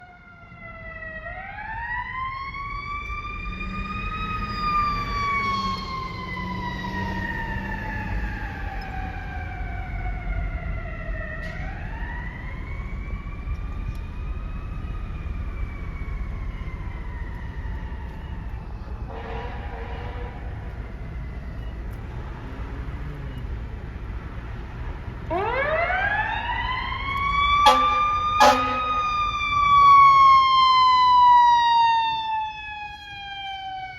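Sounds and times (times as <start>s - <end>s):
fire truck siren wailing: 0.0s - 33.9s
low rumble of trucks: 0.0s - 33.9s
horn blasts: 27.6s - 29.2s.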